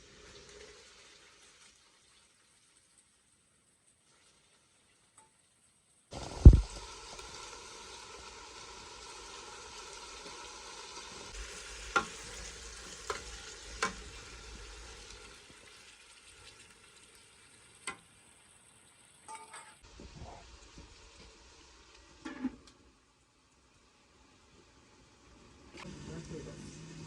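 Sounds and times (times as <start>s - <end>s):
food sizzling in oil: 0.0s - 27.0s
loud thump: 6.4s - 6.8s
utensil clicking against pan: 11.9s - 12.2s, 13.0s - 14.0s.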